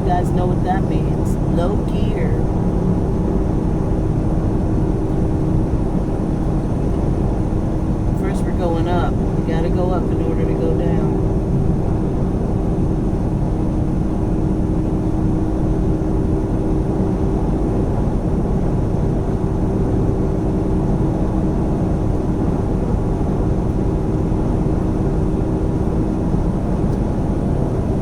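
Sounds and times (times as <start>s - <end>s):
road noise: 0.0s - 13.1s
diesel truck engine drone: 0.0s - 28.0s.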